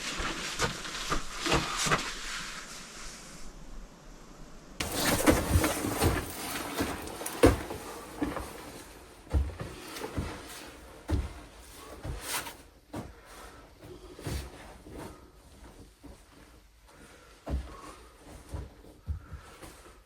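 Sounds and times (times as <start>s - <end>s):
irregular knocks and scuffs: 4.8s - 20.0s.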